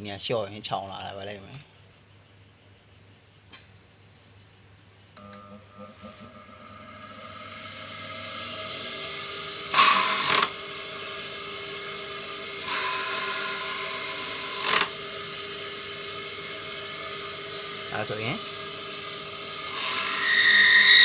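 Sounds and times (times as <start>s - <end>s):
sewing machine motor whirring: 8.2s - 20.1s
motor clicks: 9.7s - 10.6s, 14.2s - 14.9s.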